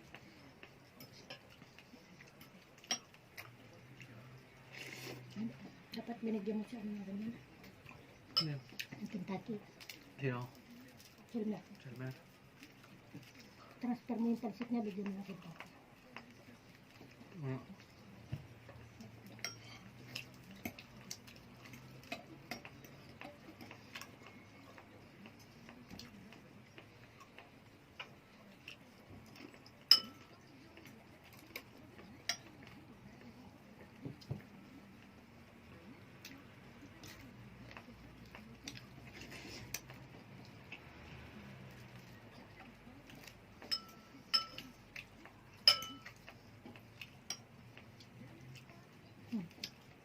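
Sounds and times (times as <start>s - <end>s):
cutlery and dishes clinking: 0.6s - 3.5s, 7.9s - 9.0s, 17.8s - 24.4s, 28.0s - 32.8s, 43.1s - 45.0s, 45.6s - 47.6s.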